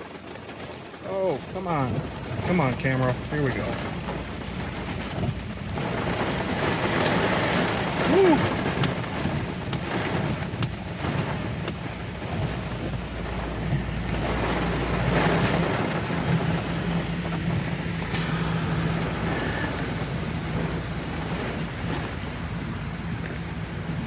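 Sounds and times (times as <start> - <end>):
rain: 0.0 - 24.0
gusty wind: 1.4 - 24.0
low steady hum: 12.4 - 24.0.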